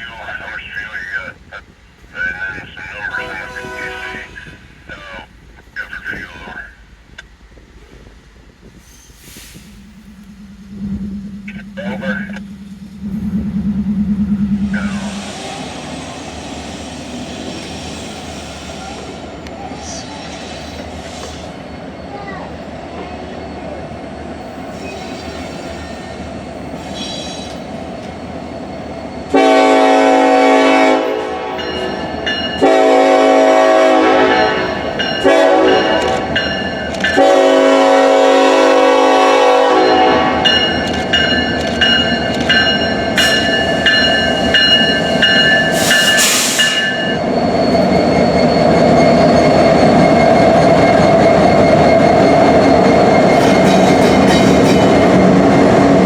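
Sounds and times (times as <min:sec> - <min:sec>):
train rumbling past: 0:00.0 - 0:56.0
locomotive horn blasts: 0:03.1 - 0:04.6, 0:29.3 - 0:31.9, 0:32.6 - 0:36.4, 0:37.1 - 0:40.7.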